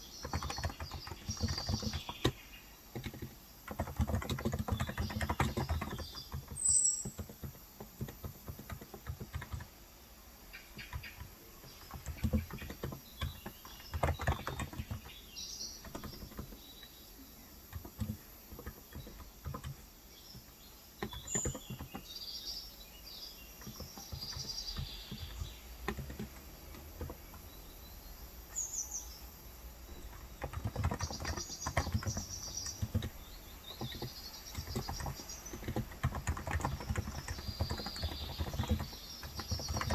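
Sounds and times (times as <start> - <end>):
birds chirping: 0.0 - 39.9
keyboard key clacks: 0.2 - 9.7, 15.8 - 17.0, 17.6 - 22.1, 23.6 - 27.5, 29.9 - 39.9.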